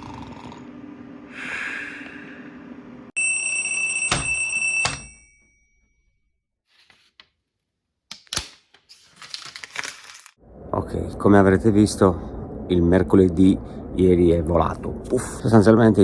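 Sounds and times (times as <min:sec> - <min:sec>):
low hum: 0:10.4 - 0:16.0.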